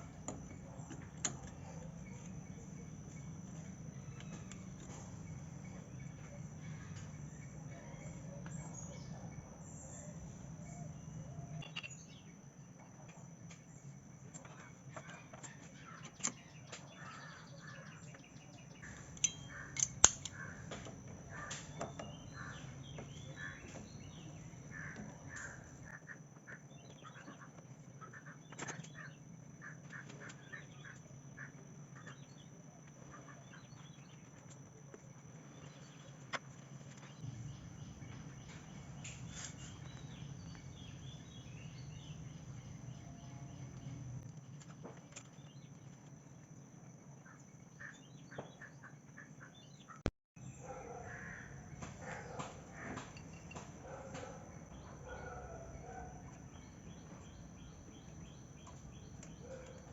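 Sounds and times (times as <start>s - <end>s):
birds calling: 14.4s - 34.7s, 35.4s - 46.2s, 47.1s - 59.9s.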